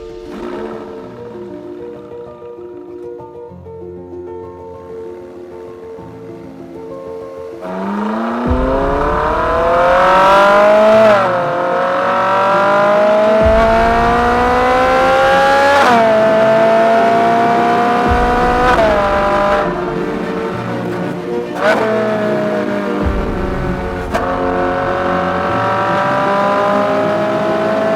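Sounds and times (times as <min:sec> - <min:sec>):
car engine accelerating through gears: 0:07.6 - 0:27.9.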